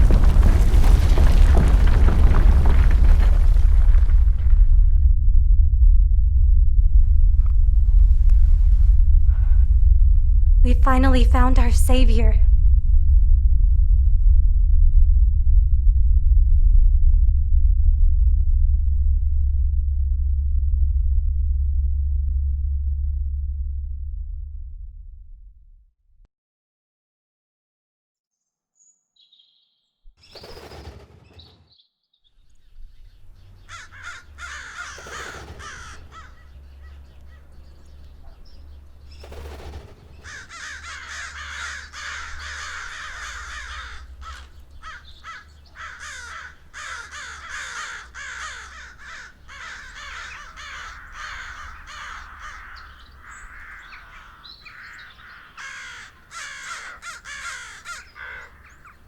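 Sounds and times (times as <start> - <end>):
low steady rumble: 2.9 - 25.9, 32.6 - 54.8
crows cawing: 33.6 - 37.9, 39.3 - 59.0.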